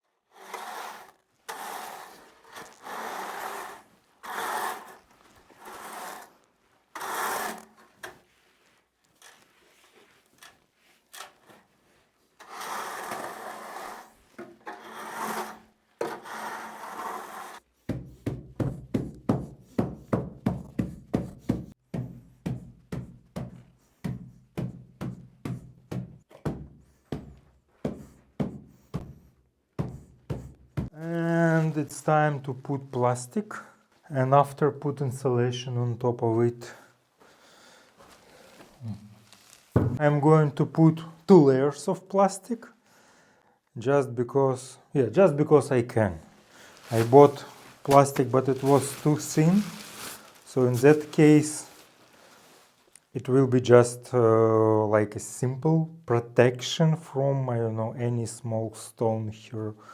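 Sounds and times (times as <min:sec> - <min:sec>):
tool scraping a rough surface: 0:00.3 - 0:08.2, 0:12.4 - 0:17.7, 0:46.3 - 0:52.4.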